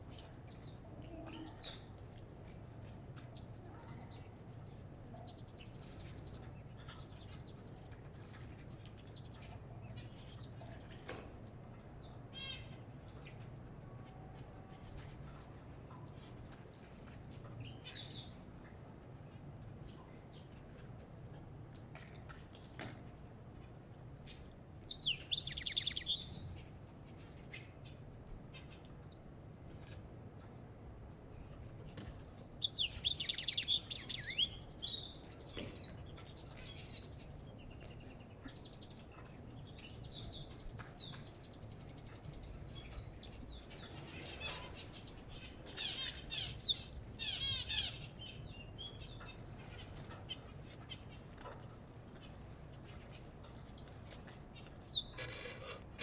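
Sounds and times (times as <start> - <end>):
songbird twittering and trilling: 0.1 - 1.9, 3.3 - 8.0, 8.9 - 13.4, 15.9 - 18.4, 24.2 - 30.0, 30.9 - 51.5, 52.2 - 56.0.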